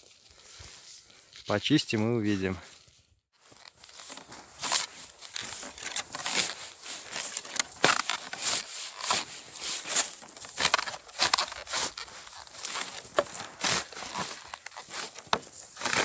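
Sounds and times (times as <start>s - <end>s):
shovel scraping snow: 3.8s - 16.0s.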